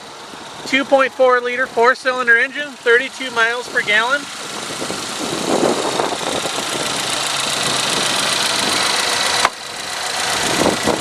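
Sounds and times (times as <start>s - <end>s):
car engine idling with whine: 0.0s - 11.0s.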